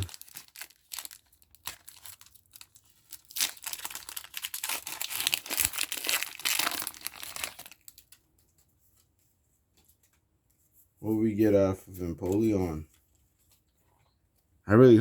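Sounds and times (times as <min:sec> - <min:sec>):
foil wrapper tearing and crinkling: 0:00.0 - 0:08.3.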